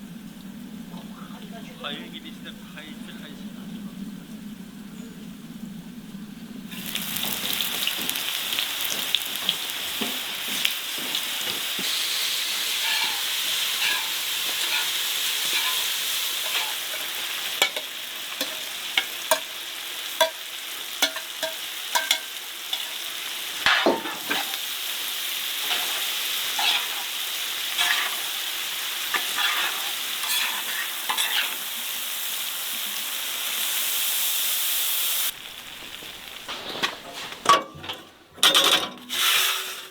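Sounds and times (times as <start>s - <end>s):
food sizzling in a pan: 6.7s - 38.2s, 39.1s - 39.9s.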